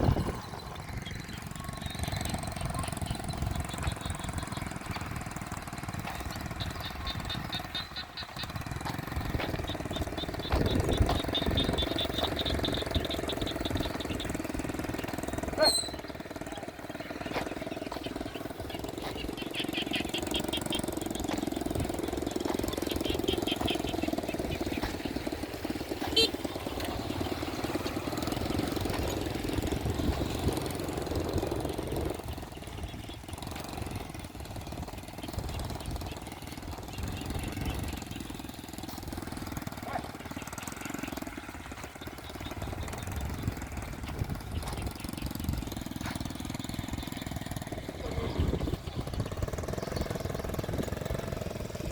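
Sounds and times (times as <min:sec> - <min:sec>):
small motorbike engine running: 0:00.0 - 0:51.9.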